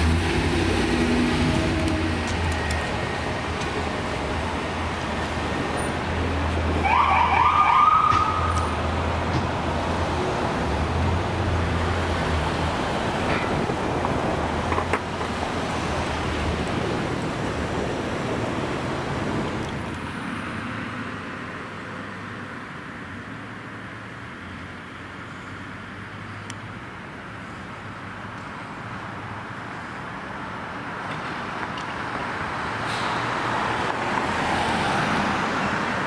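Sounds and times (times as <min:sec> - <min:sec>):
emergency vehicle engine and road noise: 0:00.0 - 0:36.0
rising siren sweep: 0:06.7 - 0:08.8.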